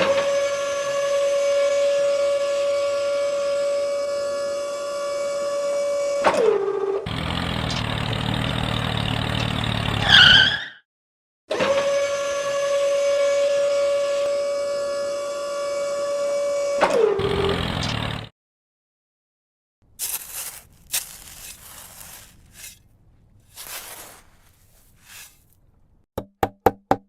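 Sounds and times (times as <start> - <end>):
loud rough grinding noise: 0.0 - 10.2, 11.5 - 18.3
small electric motor whining: 11.5 - 18.3.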